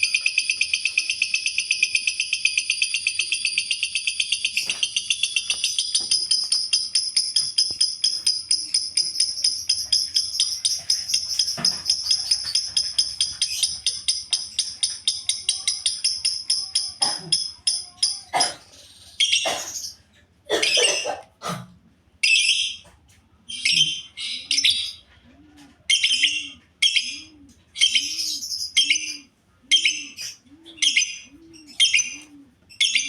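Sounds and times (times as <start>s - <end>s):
lovebird chattering trill: 0.0s - 20.0s, 27.8s - 33.0s.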